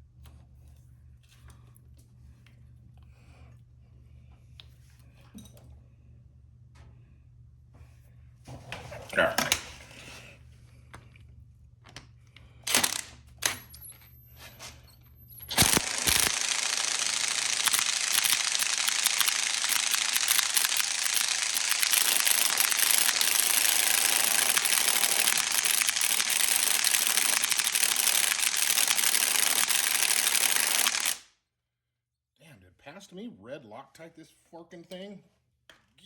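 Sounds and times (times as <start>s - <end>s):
clicks: 15.4s - 31.2s
impact wrench hammering: 15.5s - 31.2s.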